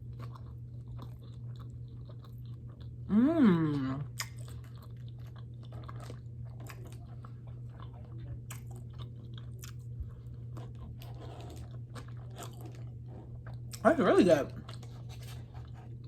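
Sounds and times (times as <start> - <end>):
chewing with wet mouth clicks: 0.0 - 3.1, 4.0 - 13.8
steady low hum: 0.0 - 16.0.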